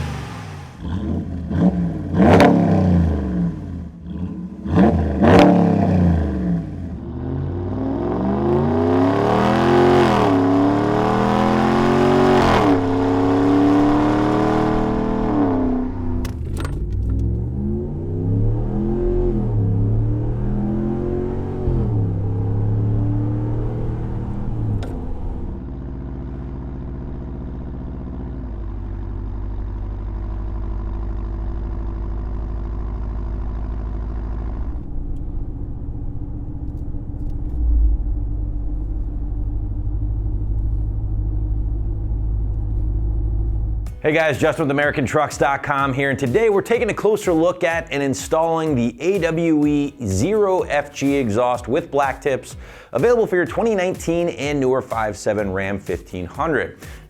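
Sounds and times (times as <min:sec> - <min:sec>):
engine idling: 0:00.0 - 0:02.4, 0:19.6 - 0:47.1
truck engine revving: 0:00.0 - 0:57.0.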